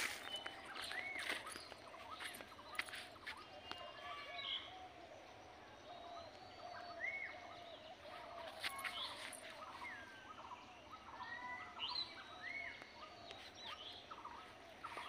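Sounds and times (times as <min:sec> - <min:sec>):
birds chirping and whistling: 0:00.0 - 0:03.8.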